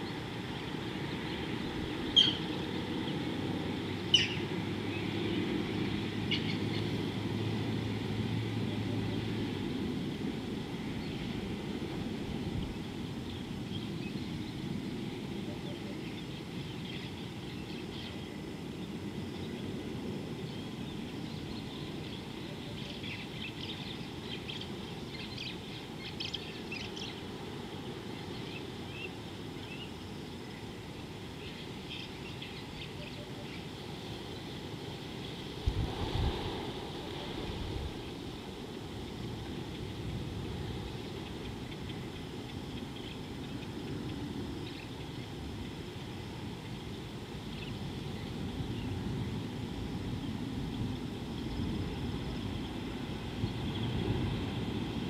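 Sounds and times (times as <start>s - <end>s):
birds chirping: 1.2s - 3.0s, 4.1s - 5.4s.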